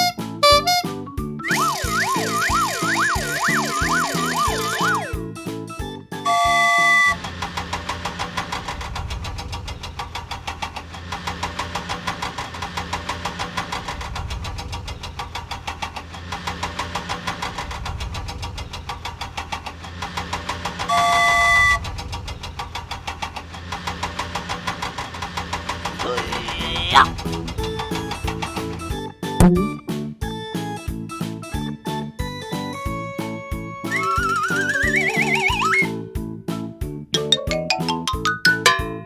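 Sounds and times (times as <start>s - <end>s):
horn honk: 0.0s - 5.1s, 6.3s - 7.3s, 20.9s - 21.8s
cartoon toy engine chugging: 0.0s - 5.2s, 23.6s - 29.8s, 33.8s - 36.1s.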